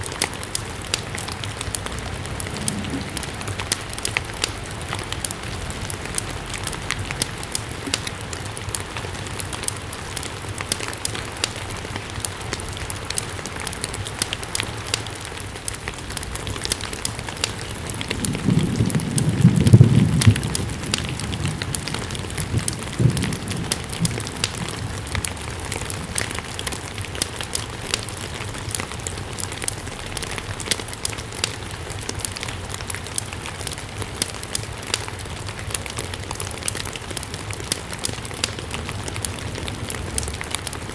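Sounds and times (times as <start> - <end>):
steady rain: 0.0 - 40.9
ticks and crackles: 0.0 - 40.9
low rumble: 0.7 - 8.3.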